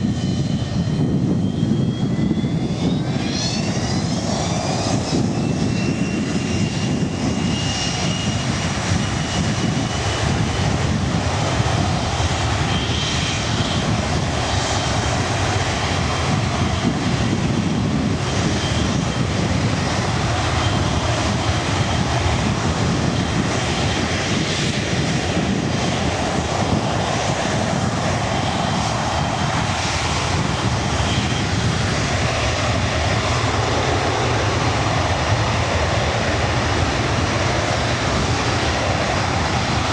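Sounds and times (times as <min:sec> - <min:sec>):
jet engines roaring with high whine: 0:00.0 - 0:39.9.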